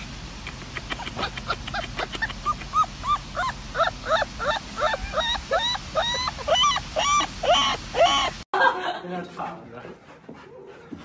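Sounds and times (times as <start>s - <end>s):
puppy yipping: 1.0s - 8.3s.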